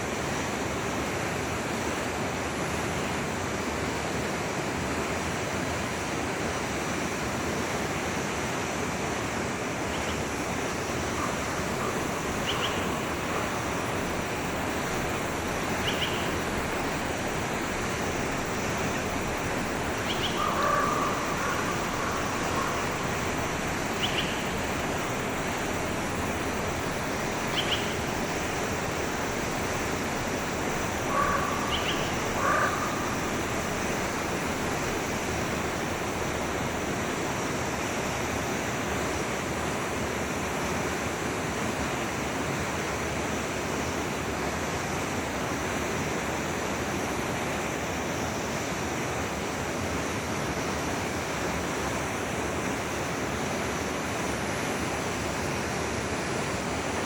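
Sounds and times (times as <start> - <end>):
stream flowing: 0.0 - 57.0
short bird calls: 11.1 - 13.7, 15.8 - 16.4, 20.0 - 23.2, 31.0 - 33.4.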